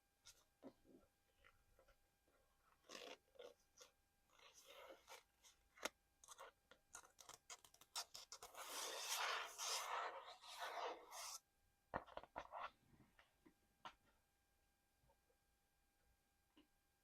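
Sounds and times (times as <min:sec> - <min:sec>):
dense scratching: 0:08.4 - 0:11.4.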